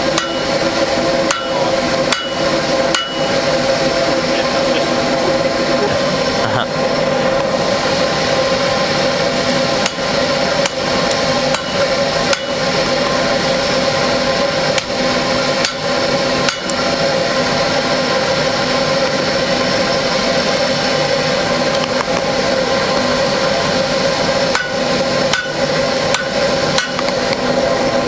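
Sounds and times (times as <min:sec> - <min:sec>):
electric blower humming: 0:00.0 - 0:18.0.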